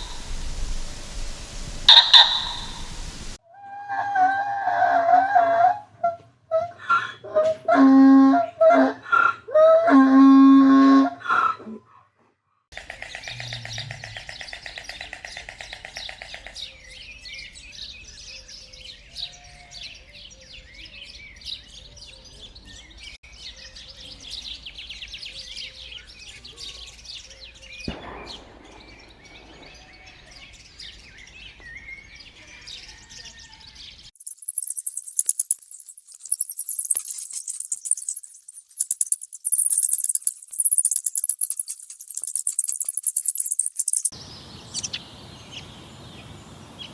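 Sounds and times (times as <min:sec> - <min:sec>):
birds chirping and twittering: 0:01.4 - 0:03.4, 0:12.8 - 0:46.9
loud pitched animal calls: 0:01.9 - 0:02.8
high hissing rattle: 0:34.2 - 0:44.1
rapid buzzing trill: 0:34.2 - 0:44.1.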